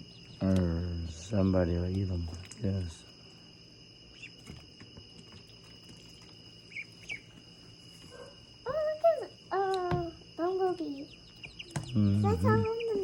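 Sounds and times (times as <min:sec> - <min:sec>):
bird chirps: 0:00.0 - 0:00.8, 0:04.1 - 0:04.5, 0:05.2 - 0:13.0
high insect trill: 0:00.0 - 0:13.0.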